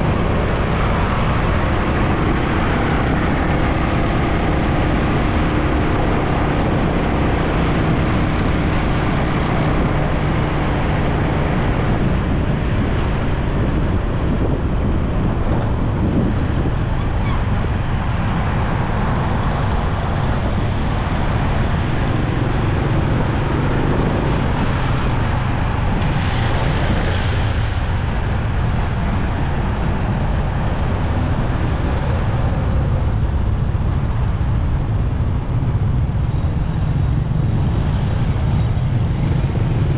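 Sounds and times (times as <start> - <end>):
road and traffic noise: 0.0 - 39.9
motorcycle engine running: 30.3 - 39.9.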